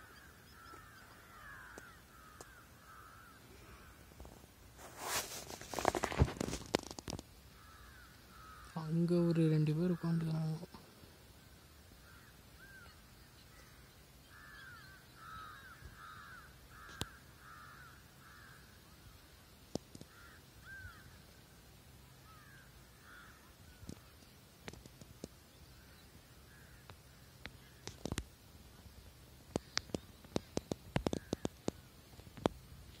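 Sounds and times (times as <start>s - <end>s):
bird calling: 0.0s - 4.1s, 7.5s - 11.0s, 11.9s - 19.3s, 19.9s - 21.3s, 22.1s - 24.3s, 28.8s - 32.0s
sharp clicks and knocks: 29.5s - 32.6s.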